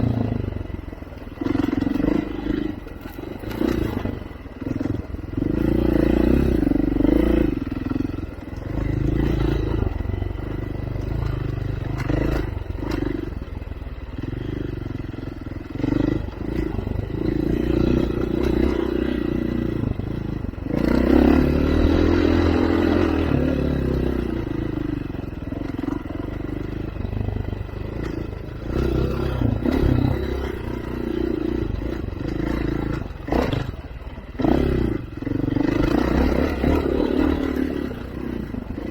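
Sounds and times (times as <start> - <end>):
off-road vehicle engine revving: 0.0 - 38.9
vehicle rattles and knocks: 25.6 - 38.9.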